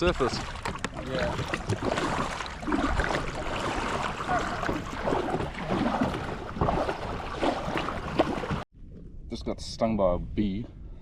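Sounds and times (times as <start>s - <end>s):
water splashing against kayak hull: 0.0s - 8.7s.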